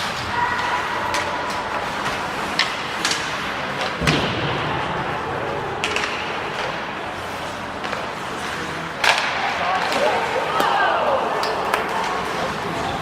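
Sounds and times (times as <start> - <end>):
arena noise hum: 0.0 - 13.0
hockey sticks and puck clacking: 0.0 - 13.0
loud thud: 4.0 - 5.0.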